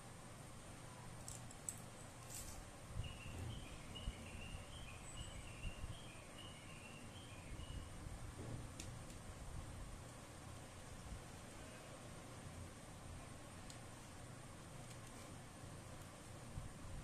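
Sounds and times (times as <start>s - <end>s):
small bird chirping: 3.0s - 8.0s.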